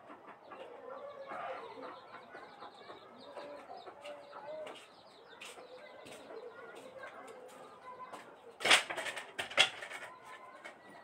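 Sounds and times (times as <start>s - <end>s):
bird calls: 0.0s - 8.7s.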